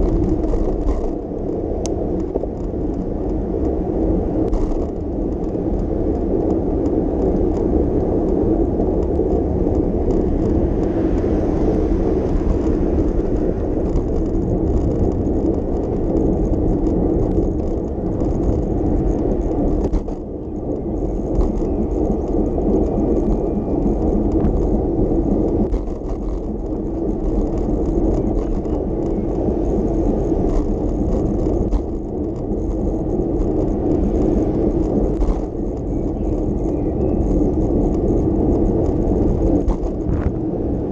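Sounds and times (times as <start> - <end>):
passing traffic: 0.0 - 40.9
road rumble: 0.0 - 40.9
wind: 0.0 - 40.9.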